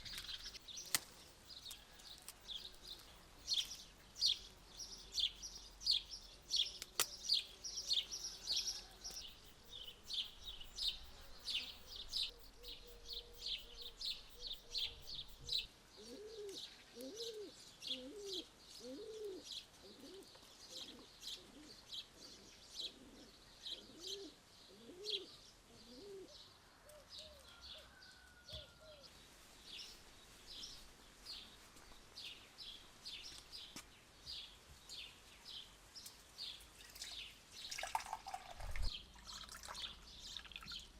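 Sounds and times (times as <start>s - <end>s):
small birds chirping: 0.0s - 40.9s
dove cooing: 16.0s - 27.4s.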